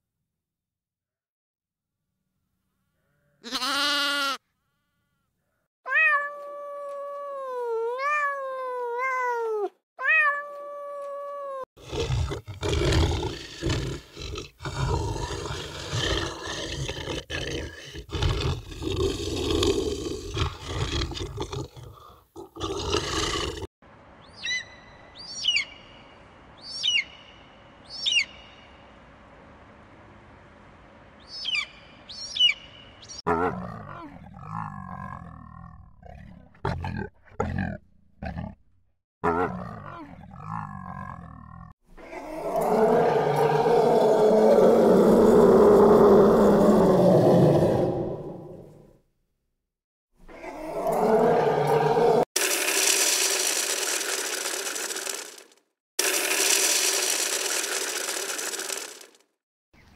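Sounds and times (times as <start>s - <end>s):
loud rough noise: 52.4s - 59.2s.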